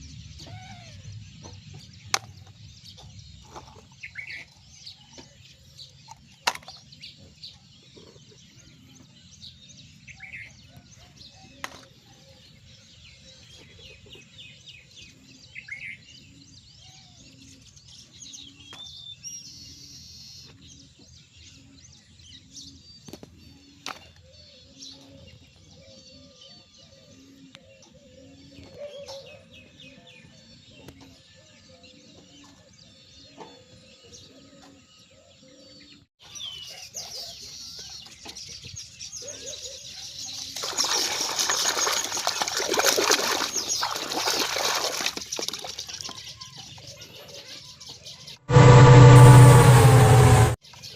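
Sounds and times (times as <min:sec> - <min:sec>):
soft low pulse: 0:48.5 - 0:50.6.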